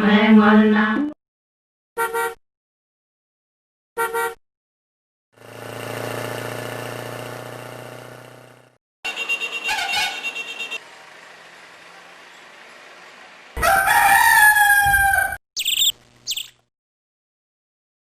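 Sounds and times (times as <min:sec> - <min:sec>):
rooster crowing: 0:13.6 - 0:15.4
pulsing chirping: 0:15.6 - 0:16.6.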